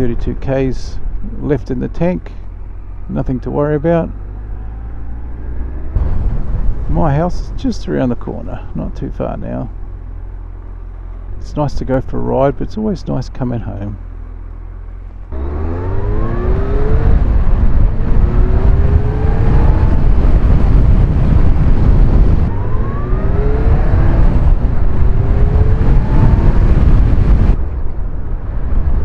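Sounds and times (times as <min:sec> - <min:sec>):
motorcycle engine accelerating: 0:00.0 - 0:29.0
wind noise: 0:03.2 - 0:09.7, 0:15.3 - 0:29.0.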